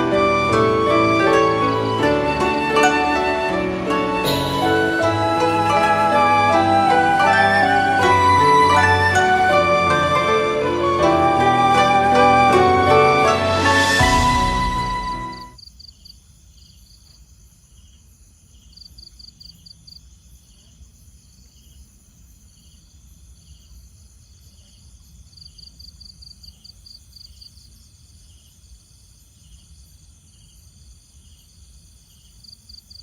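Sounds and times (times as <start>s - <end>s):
insects chirping in chorus: 15.6s - 33.0s.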